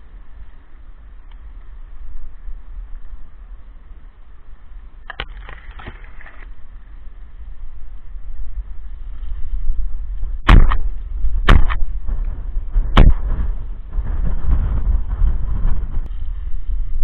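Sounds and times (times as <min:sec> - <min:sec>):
low rumble: 0:00.0 - 0:17.0
shotgun shots with echo: 0:10.5 - 0:10.8, 0:11.5 - 0:11.8, 0:13.0 - 0:13.3.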